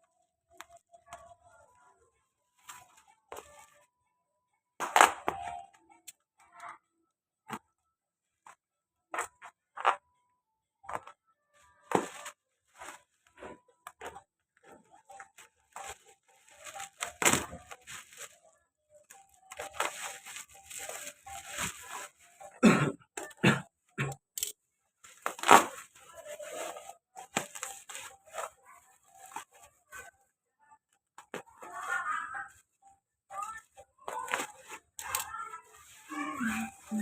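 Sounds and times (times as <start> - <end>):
packaging tearing and crinkling: 19.5 - 22.1, 25.2 - 25.9.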